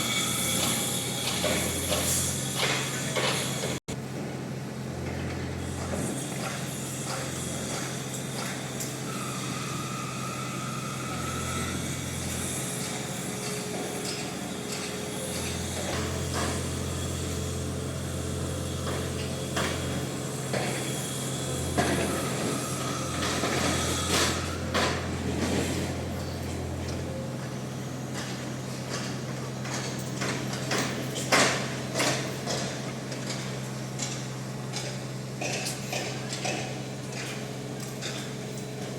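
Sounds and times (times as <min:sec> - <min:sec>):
construction machinery engine hum: 0:00.0 - 0:38.9.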